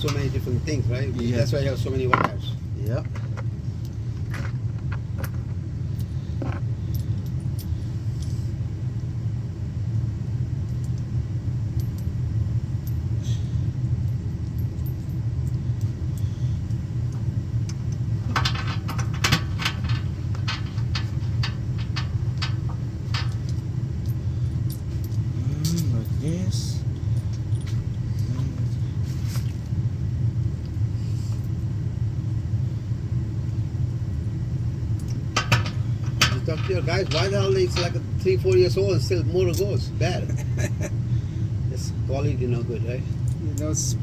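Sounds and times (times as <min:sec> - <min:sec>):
low hum: 0:00.0 - 0:44.0
metallic clinks and rattles: 0:17.7 - 0:26.4, 0:35.0 - 0:40.4.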